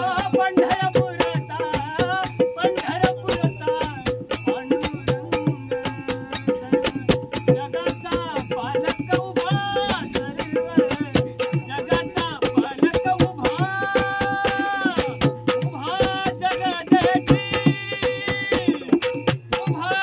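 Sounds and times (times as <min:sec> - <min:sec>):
fast percussion strokes: 0:00.0 - 0:20.0.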